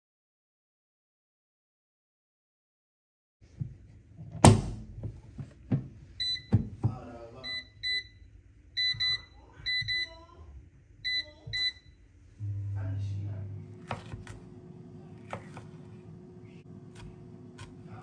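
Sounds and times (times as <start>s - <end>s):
appliance control panel beeps: 6.2s - 6.8s, 7.4s - 10.2s, 11.0s - 12.0s.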